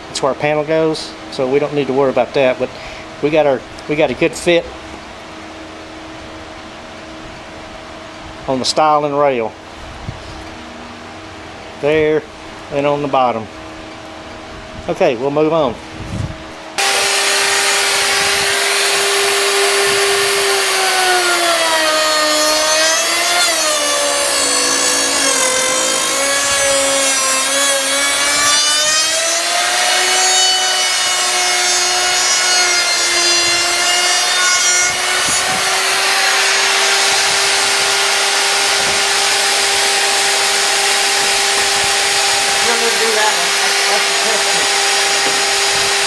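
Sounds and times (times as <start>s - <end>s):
hiss of wood cutting: 16.8s - 46.0s
router high whine: 16.8s - 46.0s.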